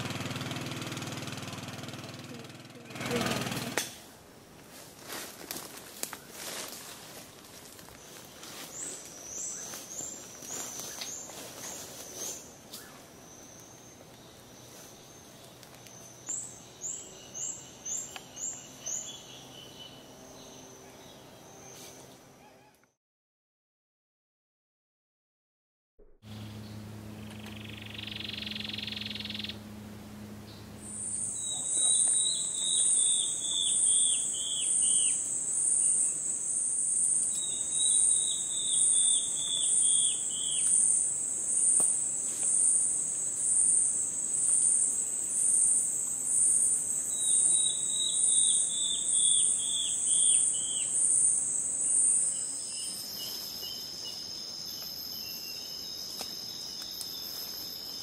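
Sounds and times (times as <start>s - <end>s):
bird singing down-slurred notes: 26.3s - 29.7s, 30.4s - 58.0s
insect trills: 27.2s - 29.6s, 30.8s - 58.0s
insect shrill pulsing: 30.8s - 58.0s.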